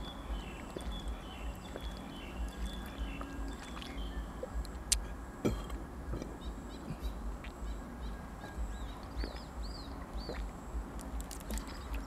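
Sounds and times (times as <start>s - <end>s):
bird chirping and whistling: 0.0s - 4.6s
low background rumble: 0.0s - 12.0s.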